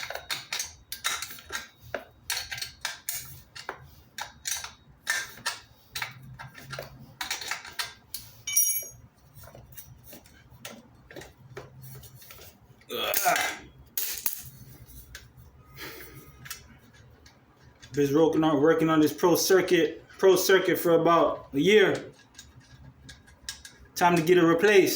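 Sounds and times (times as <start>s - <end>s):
metal parts clinking: 7.3s - 9.0s
ringing metallic ping: 8.5s - 9.0s.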